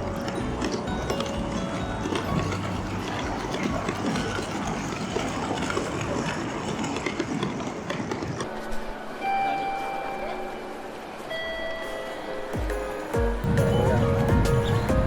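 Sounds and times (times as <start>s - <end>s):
people moving about: 0.0s - 11.3s
rumble of trains: 0.0s - 15.0s
station bustle: 0.0s - 15.0s.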